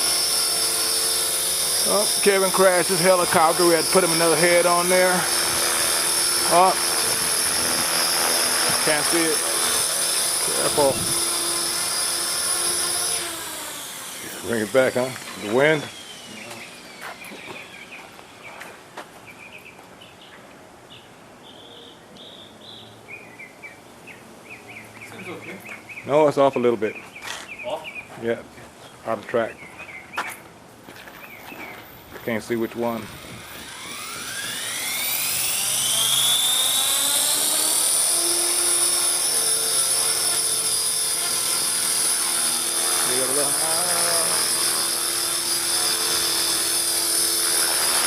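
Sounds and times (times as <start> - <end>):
helicopter motor and rotor whine: 0.0 - 19.0, 31.2 - 48.0
outdoor background hiss: 0.0 - 36.6
small birds chirping: 15.2 - 28.2, 28.8 - 32.5.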